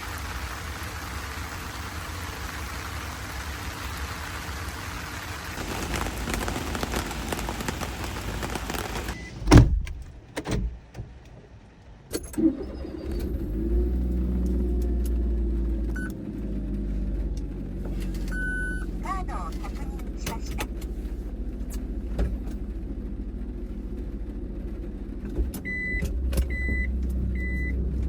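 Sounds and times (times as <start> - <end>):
rain pattering: 0.0 - 9.2
small van engine idling: 0.0 - 9.2
car door slamming: 9.4 - 10.8.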